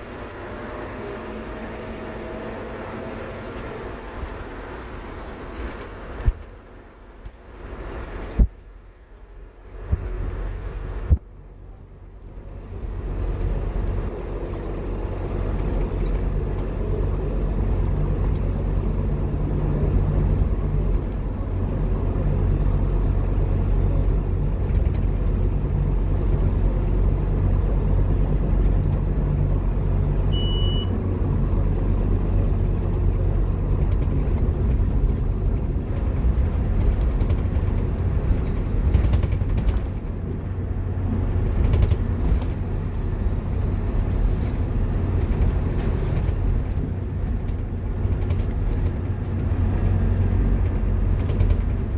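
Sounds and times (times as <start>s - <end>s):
bus diesel engine droning: 0.0s - 51.9s
road rumble: 0.0s - 51.9s
short high beep: 30.3s - 31.0s.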